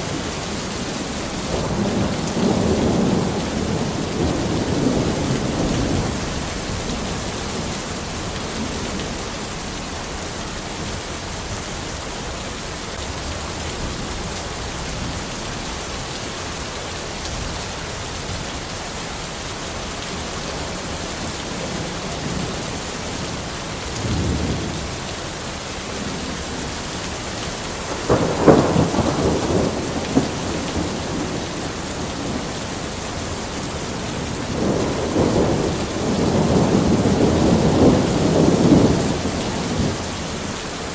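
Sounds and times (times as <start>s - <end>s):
thunder rumbling: 0.0s - 9.6s, 20.6s - 40.4s
heavy rain falling: 0.0s - 40.9s.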